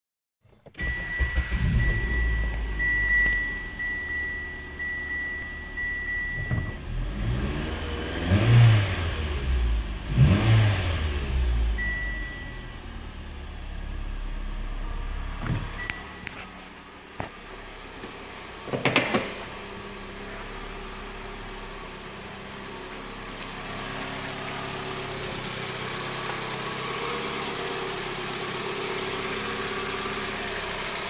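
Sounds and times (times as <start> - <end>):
car engine starting and idling: 0.5 - 31.0
engine revving: 0.8 - 4.2, 5.8 - 12.6, 19.5 - 31.0
dashboard warning chime: 0.8 - 7.0, 11.6 - 13.0, 15.6 - 16.6.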